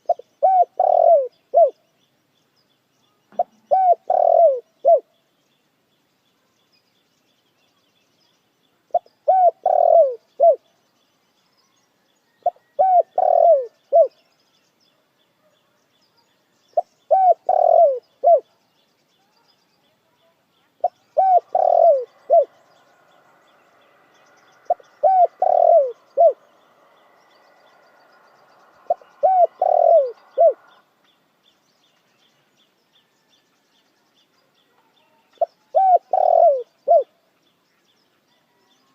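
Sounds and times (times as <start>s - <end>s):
dove cooing: 0.0s - 1.8s, 3.4s - 5.1s, 8.9s - 10.6s, 12.4s - 14.2s, 16.8s - 18.5s, 20.8s - 22.6s, 24.7s - 26.4s, 28.9s - 30.8s, 35.4s - 37.1s.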